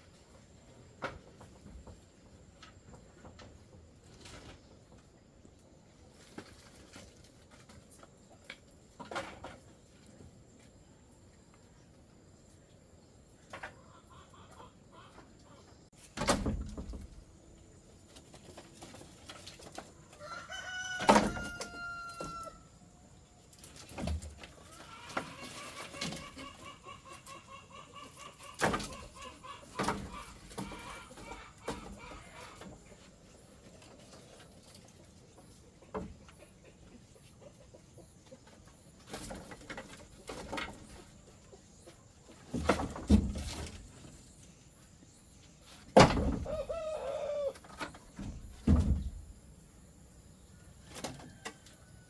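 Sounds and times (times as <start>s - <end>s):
chickens clucking: 0.0s - 16.1s, 16.9s - 52.0s
rooster crowing: 20.2s - 22.7s, 46.5s - 47.6s.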